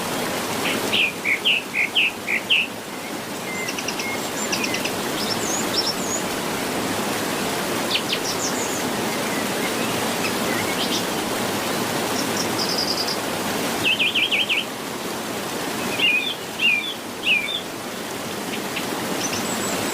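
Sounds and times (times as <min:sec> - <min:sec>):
steady outdoor hiss: 0:00.0 - 0:19.9
birds chirping and calling: 0:15.9 - 0:17.7.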